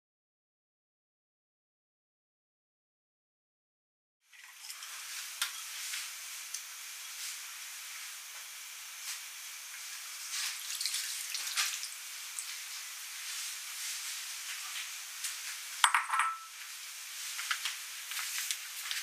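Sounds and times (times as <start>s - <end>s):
food frying in hot oil: 4.2s - 19.0s.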